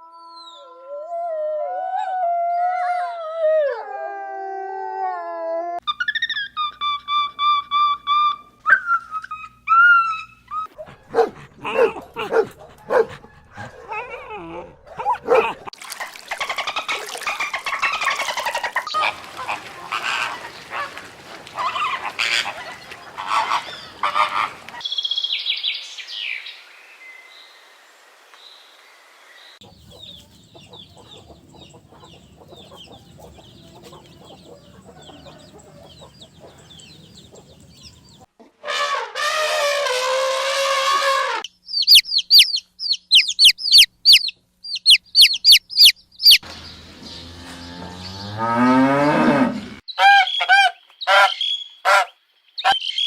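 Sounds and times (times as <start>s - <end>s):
loud animal calls: 16.4s - 24.8s
high-pitched bird chirping: 41.5s - 46.4s.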